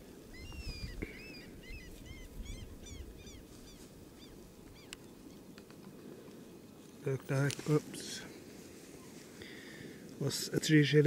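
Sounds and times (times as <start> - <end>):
bird calling high-pitched: 0.3 - 5.4.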